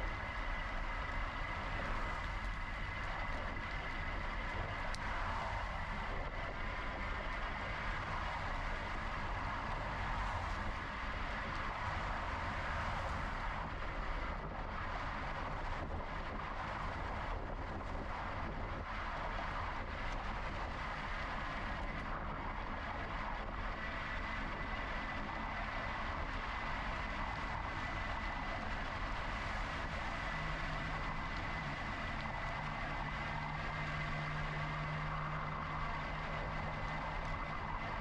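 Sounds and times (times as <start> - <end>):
wind noise: 0.0 - 38.0
low rumble: 25.6 - 38.0.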